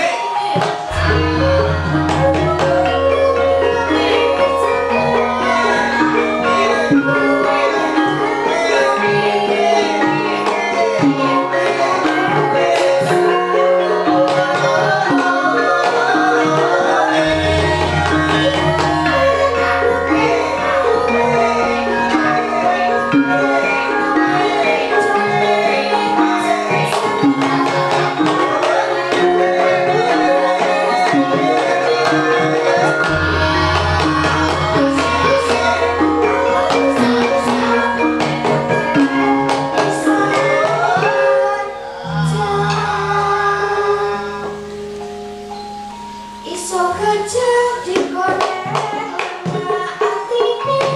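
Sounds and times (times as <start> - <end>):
person singing: 0.0 - 45.1, 46.4 - 50.9
gamelan ensemble playing: 0.0 - 50.9
metallophones ringing: 0.0 - 50.9
hand drum strokes: 0.4 - 8.4, 14.2 - 41.3
deep gong stroke: 0.9 - 7.6, 17.2 - 23.1, 33.1 - 39.2.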